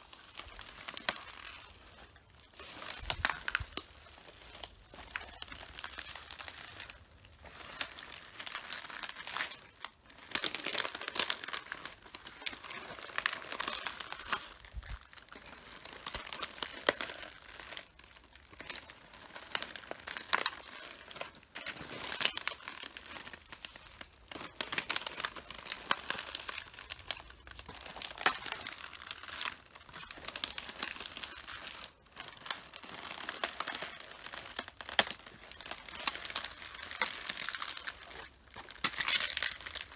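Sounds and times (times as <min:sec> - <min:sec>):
leaves crunching underfoot: 0:00.0 - 0:09.5.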